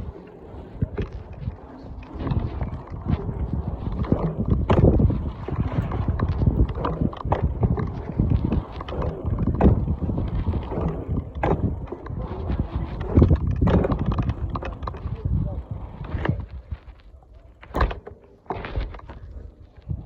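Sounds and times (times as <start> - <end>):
irregular knocks and clatters: 0.8 - 15.4.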